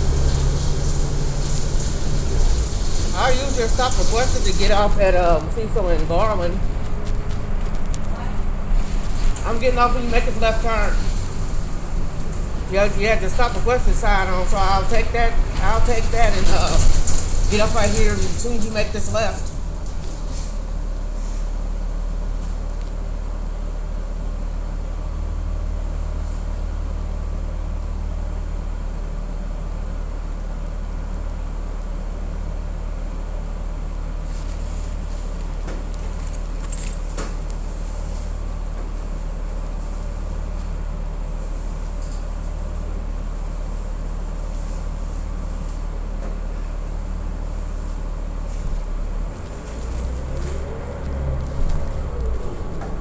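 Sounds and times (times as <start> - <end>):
light rattles: 0.0 - 23.1, 34.2 - 53.0
road noise: 0.0 - 27.2, 33.8 - 53.0
bus engine rumble: 0.0 - 53.0.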